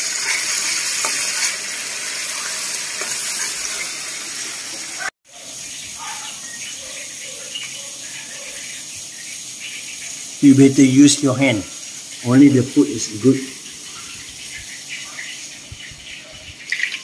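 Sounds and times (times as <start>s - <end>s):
sauce sizzling in a pan: 0.0s - 17.0s.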